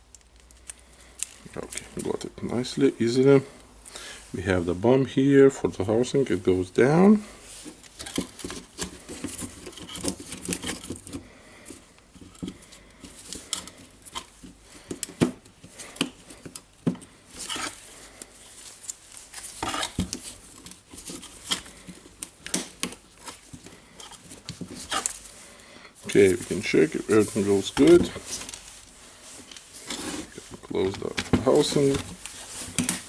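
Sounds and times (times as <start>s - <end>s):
plastic parts clicking and knocking: 7.7s - 25.2s.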